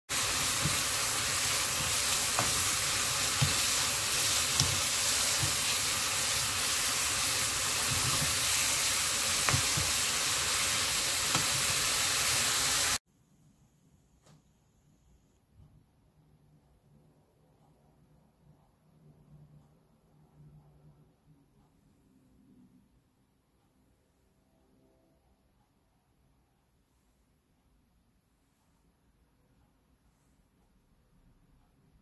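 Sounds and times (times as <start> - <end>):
spatula knocking and scraping pan: 0.1 - 11.9
food sizzling in a pan: 0.1 - 13.0.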